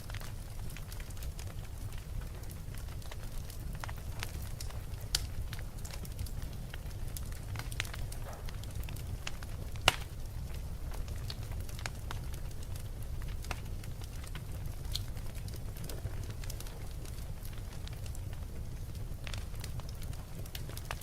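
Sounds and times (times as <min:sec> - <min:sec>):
fire pops and snaps: 0:00.0 - 0:21.0
wood fire crackling: 0:00.0 - 0:21.0.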